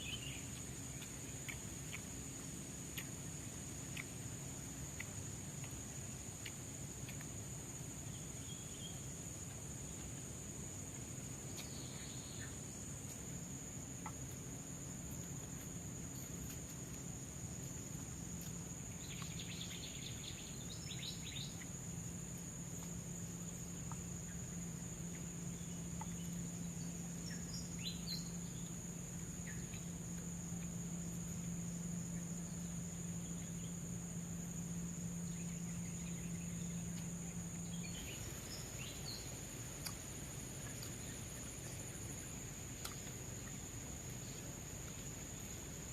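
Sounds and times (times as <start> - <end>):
low steady hum: 0.0 - 45.9
high-pitched insect drone: 17.6 - 42.7.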